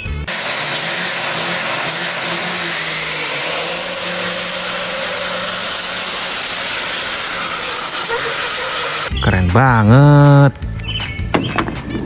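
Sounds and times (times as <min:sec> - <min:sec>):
diesel truck engines revving: 0:00.0 - 0:10.6
high rising whistle: 0:00.3 - 0:09.2.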